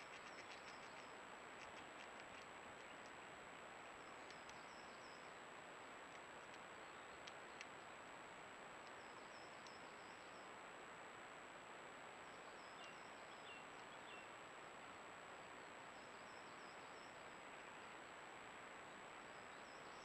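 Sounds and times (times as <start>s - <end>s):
faint bird chirps: 0.0s - 1.2s, 3.9s - 5.4s, 8.9s - 10.6s, 12.2s - 14.4s, 15.4s - 18.2s, 18.8s - 20.0s.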